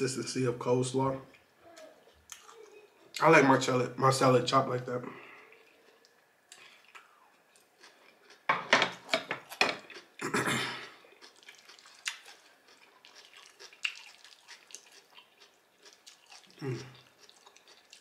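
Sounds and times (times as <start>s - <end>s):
crunchy chewing: 5.3s - 18.0s.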